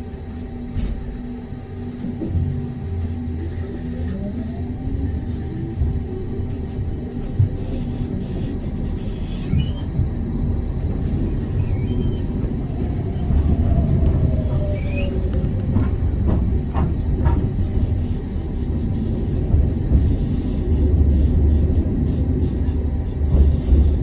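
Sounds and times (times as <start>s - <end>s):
tram rumbling along rails: 0.0s - 24.0s.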